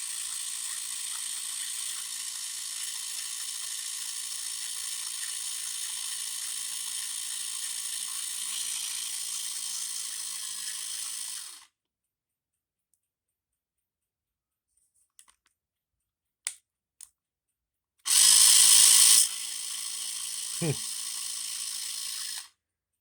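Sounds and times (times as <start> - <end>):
power drill motor whirring: 0.0 - 11.7, 18.1 - 22.5.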